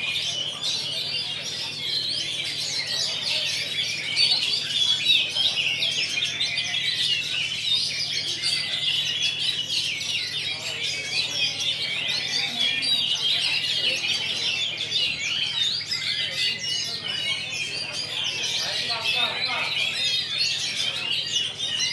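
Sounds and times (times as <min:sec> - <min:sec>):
chorus of songbirds singing: 0:00.0 - 0:21.9.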